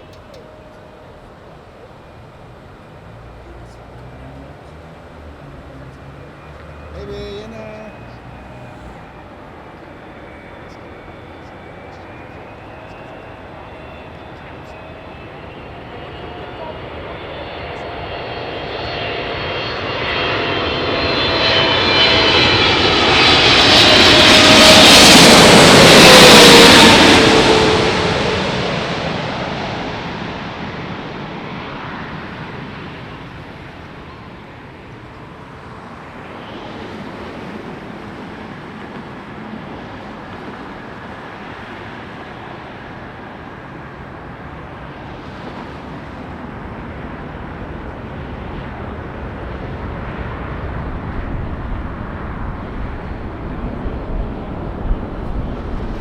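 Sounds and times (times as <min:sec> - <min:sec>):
jet airliner passing overhead: 0:00.0 - 0:56.0
wind on microphone: 0:45.0 - 0:56.0.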